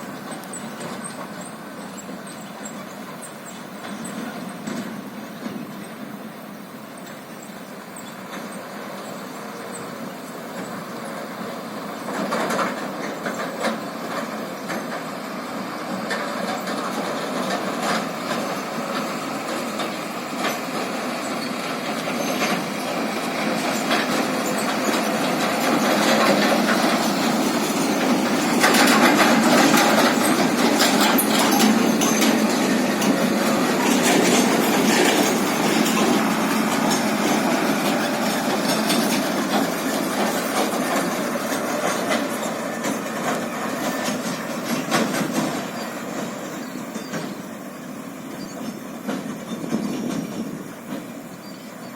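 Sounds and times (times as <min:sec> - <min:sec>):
heavy truck running and rattling: 0:00.0 - 0:51.9
knocks and clatters: 0:16.0 - 0:46.4.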